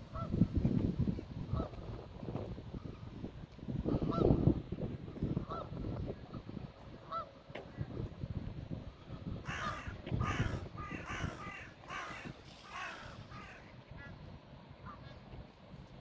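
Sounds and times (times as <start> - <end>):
bird calling harshly: 9.5 - 13.7.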